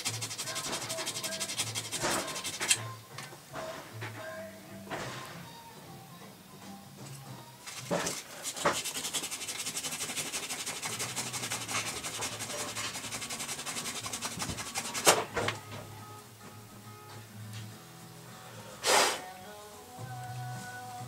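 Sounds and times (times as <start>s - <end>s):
hand sanding with sandpaper: 0.0s - 2.8s, 7.6s - 15.2s.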